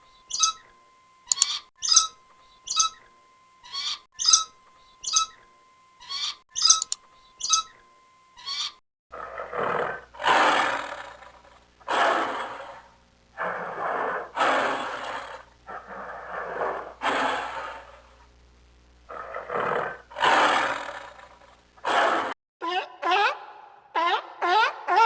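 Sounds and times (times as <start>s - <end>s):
bird calling high notes: 0.0s - 0.7s, 1.3s - 7.8s
animal giving long rough calls: 9.1s - 18.1s, 19.1s - 22.3s.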